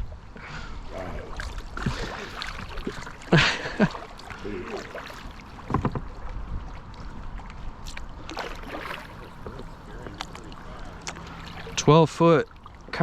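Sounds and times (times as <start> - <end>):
paddle strokes splashing water: 0.8 - 13.0
distant voice calls: 9.0 - 13.0.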